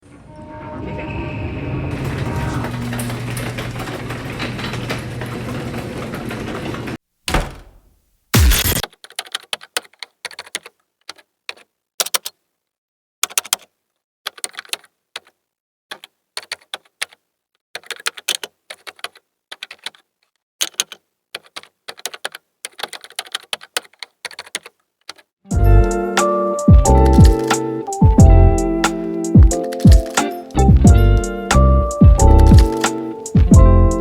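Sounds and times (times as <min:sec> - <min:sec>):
music: 0:25.5 - 0:34.0
sharp clicks and taps: 0:26.2 - 0:28.2.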